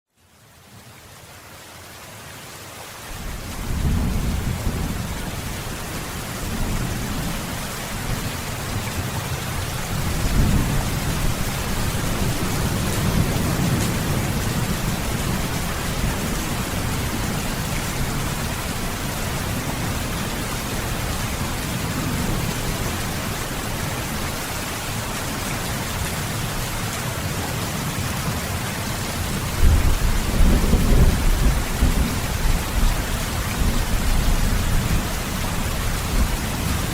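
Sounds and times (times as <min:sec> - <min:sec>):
steady rain hiss: 0:00.1 - 0:36.9
rolling thunder rumbling: 0:03.2 - 0:24.3, 0:29.2 - 0:36.9.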